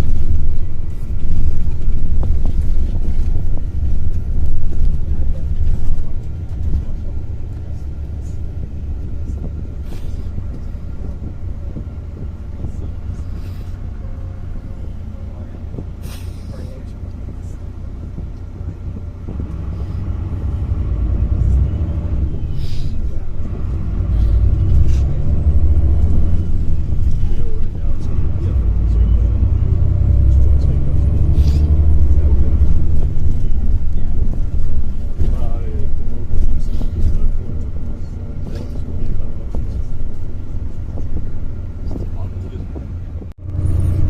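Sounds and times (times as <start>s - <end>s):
bus engine and tyres rumbling: 0.0s - 44.0s.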